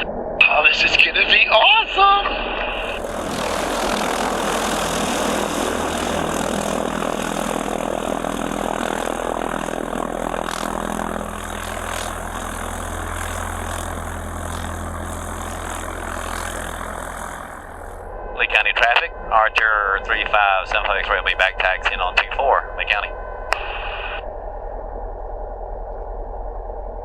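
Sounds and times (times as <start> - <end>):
light plane engine idling: 2.4 - 22.3.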